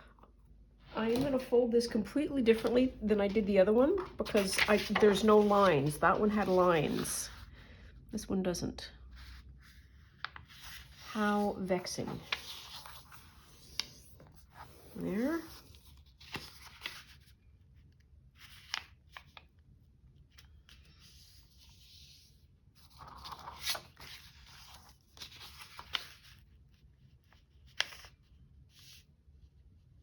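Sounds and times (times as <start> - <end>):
paper rustling and crinkling: 2.4 - 7.4, 9.2 - 17.4, 22.8 - 29.0.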